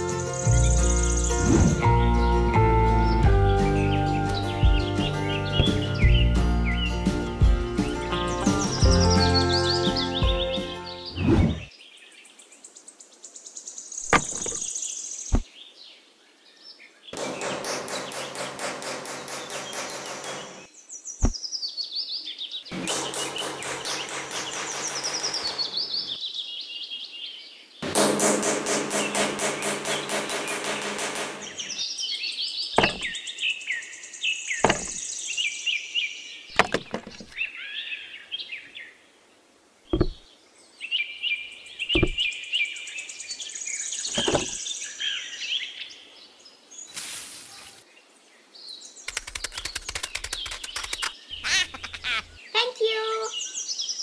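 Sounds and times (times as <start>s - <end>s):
birds chirping: 0.0s - 27.8s, 28.9s - 54.0s
steady outdoor background: 0.0s - 54.0s
wooden sticks knocking on hard base: 32.8s - 33.2s, 34.6s - 35.0s, 36.6s - 37.3s, 40.0s - 40.2s, 42.0s - 42.2s.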